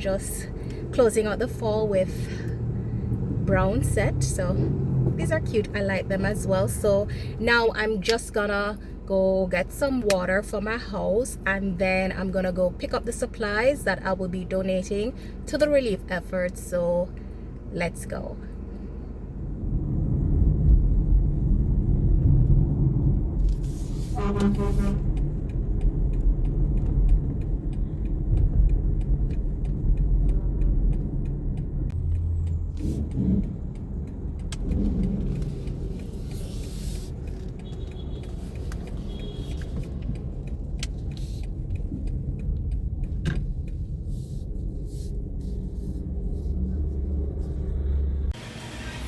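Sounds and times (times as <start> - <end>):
road rumble: 0.0 - 49.0
car engine running: 18.1 - 49.0.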